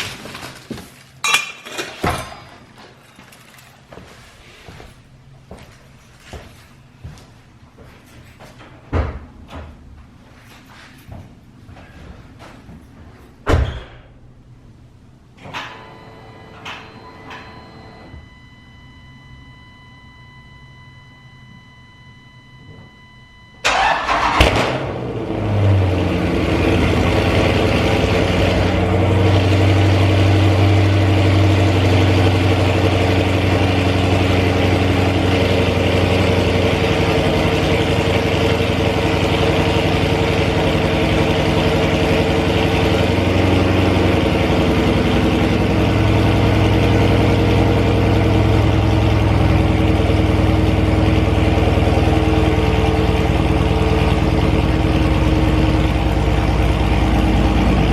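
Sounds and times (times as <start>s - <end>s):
car engine starting and idling: 15.2s - 57.9s.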